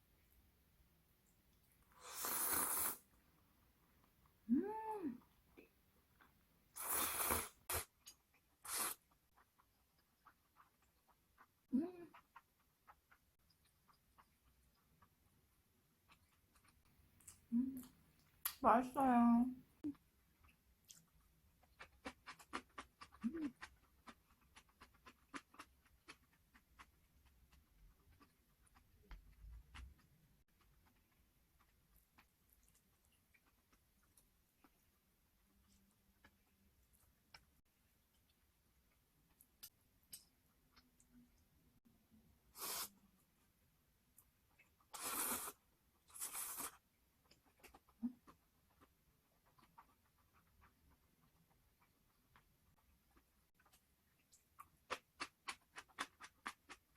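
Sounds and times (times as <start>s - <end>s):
slurping noodles: 2.0s - 3.1s, 6.8s - 8.0s, 8.6s - 9.2s, 42.5s - 42.9s, 44.9s - 46.8s.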